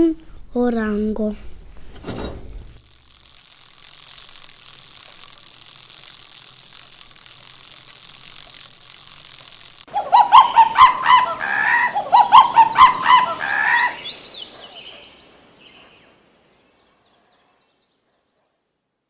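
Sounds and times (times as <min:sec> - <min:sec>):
loud bird-like calls: 0:09.6 - 0:16.2.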